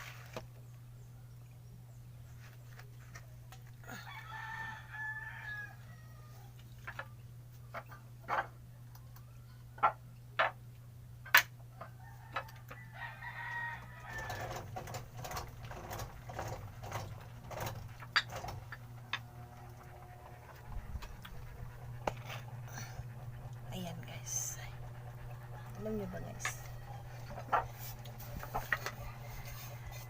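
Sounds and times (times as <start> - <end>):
rooster crowing: 3.9 - 6.6, 11.8 - 14.7, 25.5 - 30.0
low hum: 13.9 - 30.0.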